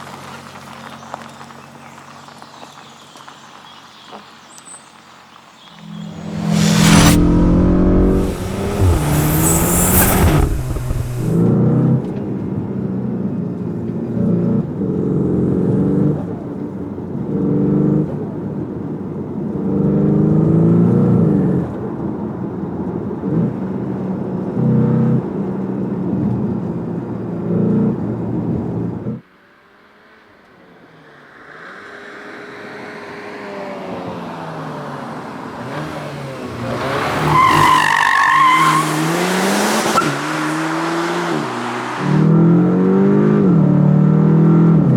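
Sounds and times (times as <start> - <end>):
car engine accelerating: 5.8 - 11.4
loud rushing burst: 5.8 - 11.4.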